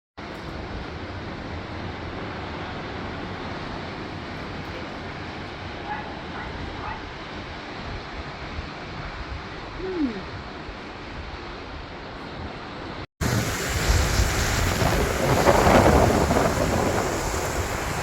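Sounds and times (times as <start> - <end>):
rushing wind and water: 0.2 - 18.0
wind buffeting microphone: 13.2 - 18.0.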